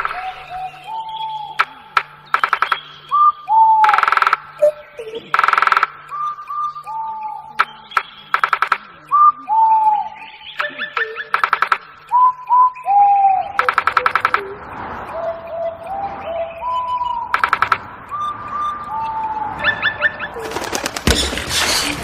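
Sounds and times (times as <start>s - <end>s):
birds whistling and trilling: 0.0s - 22.0s.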